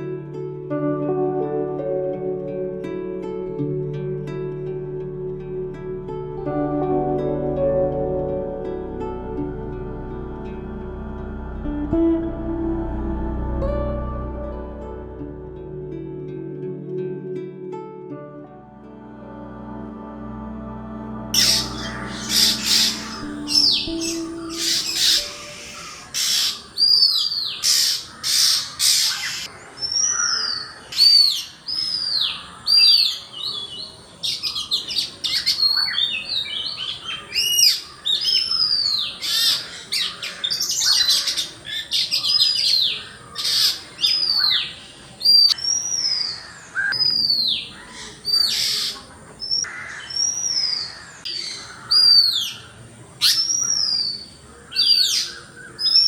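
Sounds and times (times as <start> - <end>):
harsh rasping bird notes: 21.3 - 33.1
birds chirping: 21.4 - 56.0.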